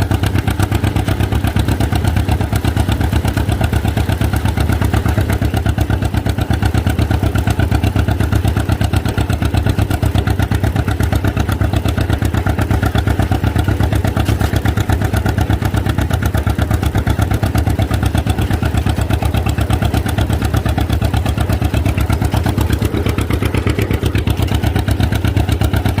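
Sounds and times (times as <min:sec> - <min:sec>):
tractor engine pulling steadily: 0:00.0 - 0:26.0.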